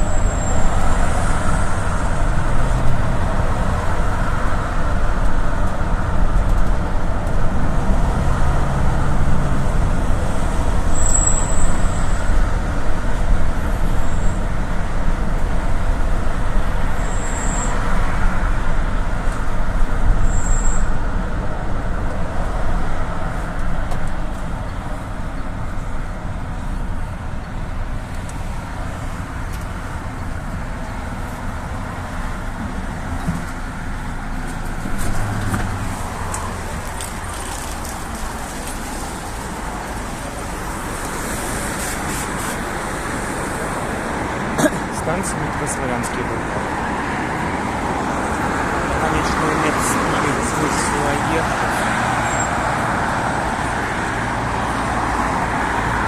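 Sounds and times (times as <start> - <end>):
minibus engine and road noise: 0.0 - 56.0.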